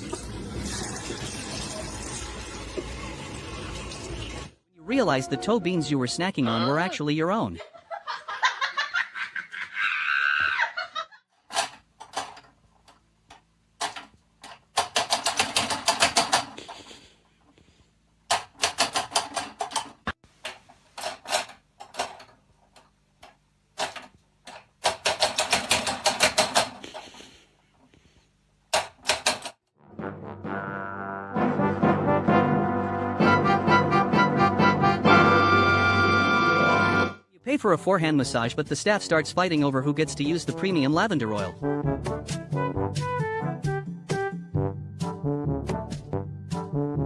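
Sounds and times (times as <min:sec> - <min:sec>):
music with brass: 0:29.8 - 0:37.2, 0:41.2 - 0:47.0.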